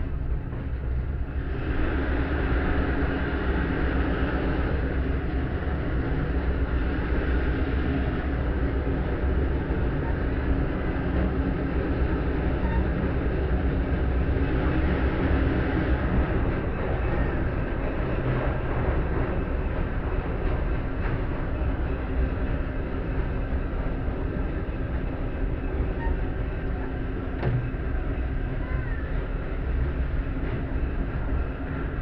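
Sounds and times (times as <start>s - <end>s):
locomotive engine running: 0.0s - 32.0s
train wheels clattering on rail: 0.0s - 32.0s.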